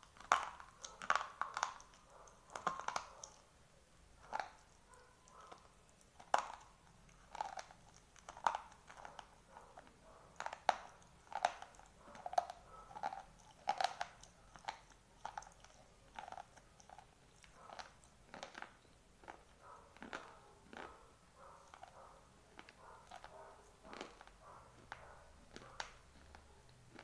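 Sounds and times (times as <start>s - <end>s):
crunchy chewing: 0.0s - 3.5s, 4.2s - 27.0s
sharp crunching bite: 22.6s - 27.0s.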